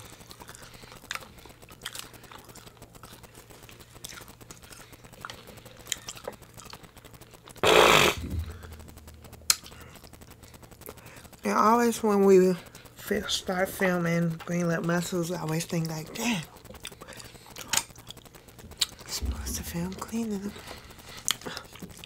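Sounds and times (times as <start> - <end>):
faint chewing: 0.0 - 7.6, 12.4 - 22.0
short loud burst of noise: 7.6 - 10.6.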